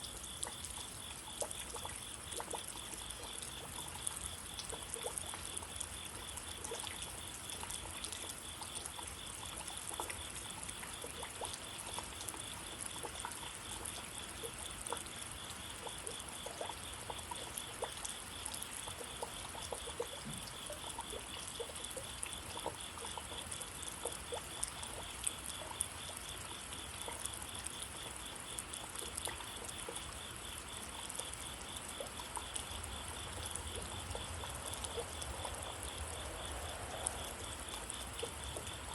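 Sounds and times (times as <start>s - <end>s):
drips ticking: 0.0s - 38.9s
steady rain: 17.6s - 38.9s.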